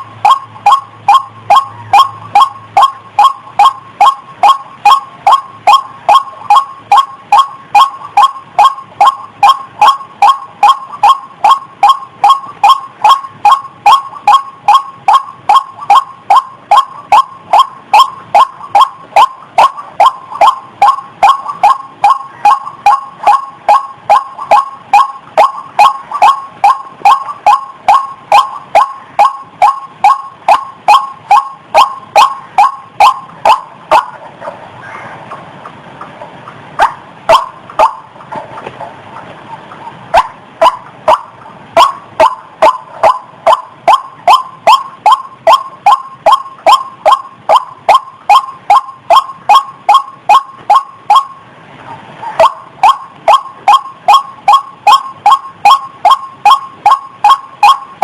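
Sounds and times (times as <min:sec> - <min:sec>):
rail bird calling: 0:00.0 - 0:58.0.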